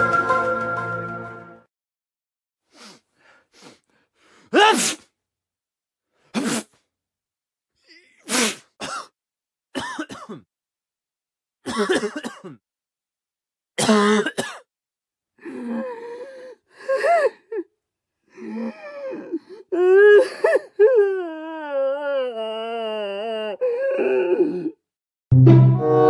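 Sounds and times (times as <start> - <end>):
person coughing: 8.8 - 9.2, 9.8 - 10.5, 11.7 - 12.6, 13.8 - 14.7.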